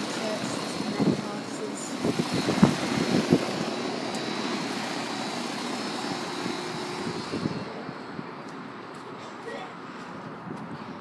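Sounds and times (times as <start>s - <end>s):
air conditioner fan whoosh: 2.0s - 7.9s.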